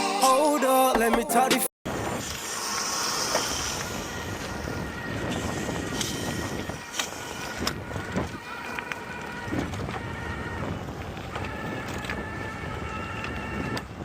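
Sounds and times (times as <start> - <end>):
wind rushing over microphone: 3.6 - 14.0.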